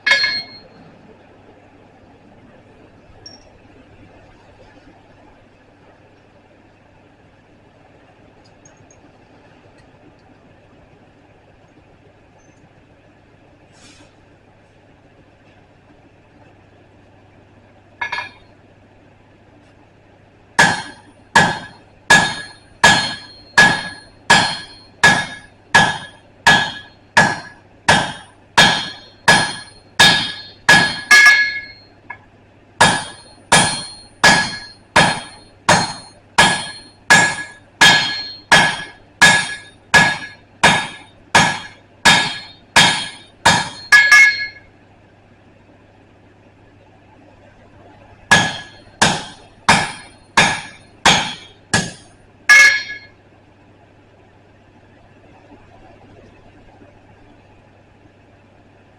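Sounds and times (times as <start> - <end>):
hammer striking steel on anvil: 0.0 - 0.8, 18.0 - 18.4, 20.6 - 32.2, 32.8 - 44.7, 48.3 - 53.2.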